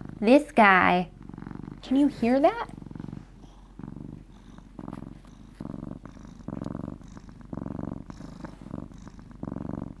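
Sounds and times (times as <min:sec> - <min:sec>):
cat purring: 0:00.0 - 0:10.0.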